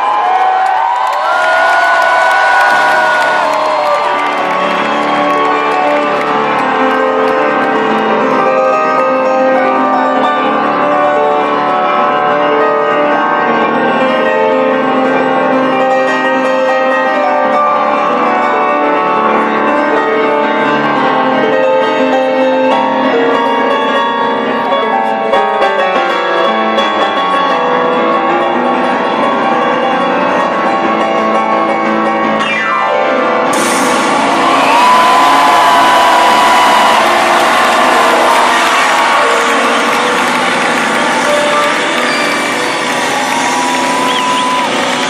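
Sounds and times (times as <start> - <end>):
live rock band with piano: 0.0 - 45.0.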